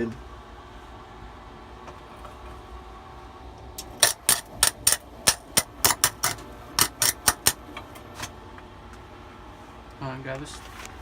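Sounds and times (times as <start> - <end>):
metallic cracks on steel: 3.8 - 7.6.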